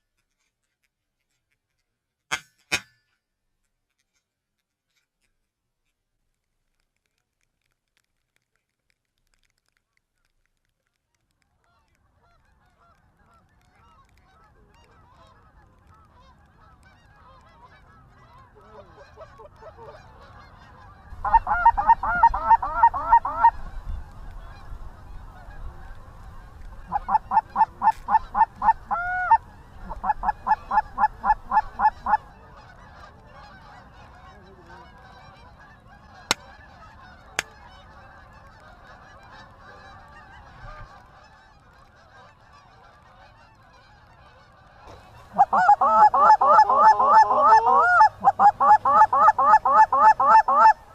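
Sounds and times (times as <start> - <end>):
geese honking: 11.5 - 50.9.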